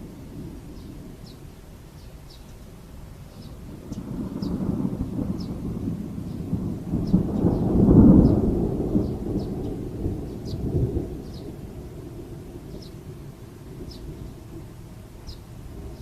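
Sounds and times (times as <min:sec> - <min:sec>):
thunder rumbling: 0:03.5 - 0:16.0.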